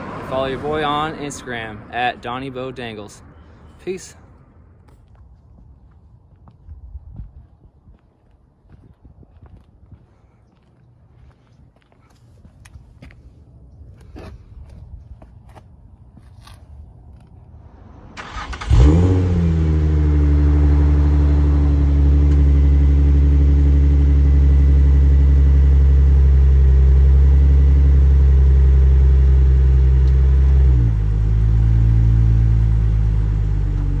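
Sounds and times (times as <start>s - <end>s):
car engine starting and idling: 17.1s - 34.0s.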